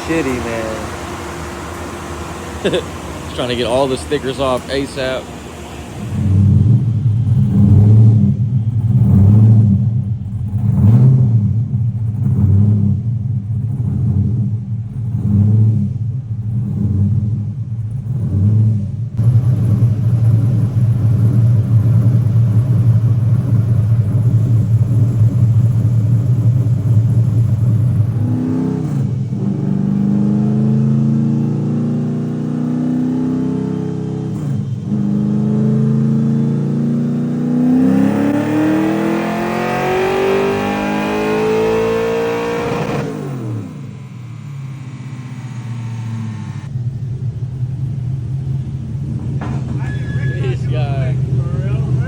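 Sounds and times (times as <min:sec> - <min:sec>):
car engine revving on dyno: 0:00.0 - 0:52.0.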